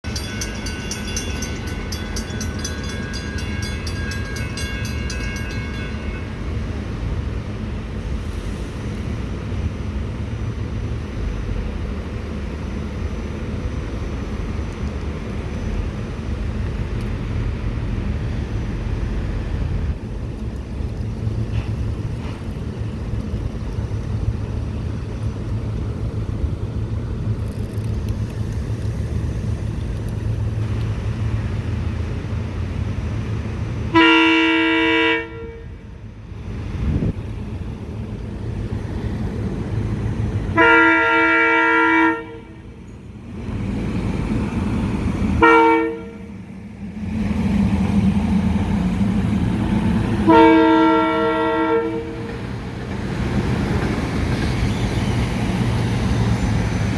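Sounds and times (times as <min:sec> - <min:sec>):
train horn blast: 0:33.9 - 0:35.8, 0:40.5 - 0:42.8, 0:45.4 - 0:46.4, 0:50.2 - 0:52.4.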